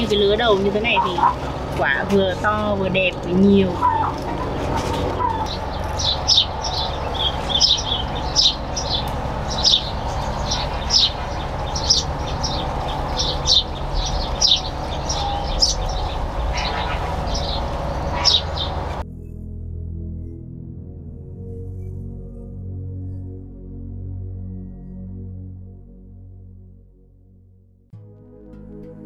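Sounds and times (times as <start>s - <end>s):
small birds chirping: 0.0s - 19.0s
low steady rumble: 0.0s - 20.1s
soft ambient music: 0.0s - 29.0s.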